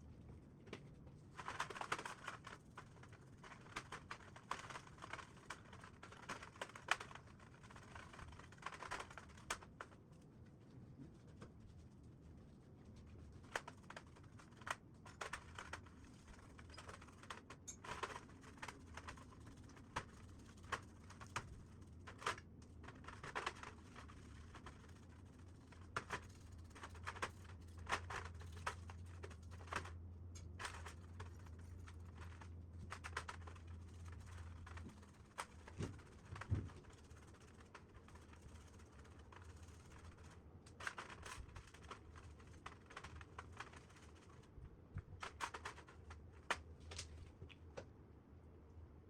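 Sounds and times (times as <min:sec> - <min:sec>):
low steady hum: 0:00.0 - 0:49.0
small parts clicking and tapping: 0:13.5 - 0:44.4.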